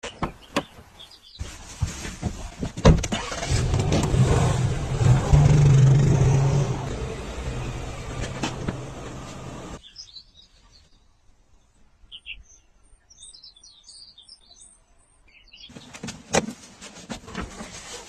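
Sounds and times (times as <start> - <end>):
machine humming: 5.2 - 9.8.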